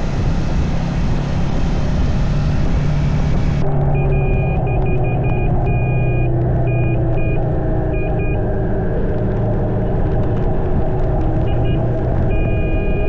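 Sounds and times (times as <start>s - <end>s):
motorcycle engine running: 0.0s - 13.0s
high electronic beep: 3.7s - 8.5s, 11.4s - 13.0s.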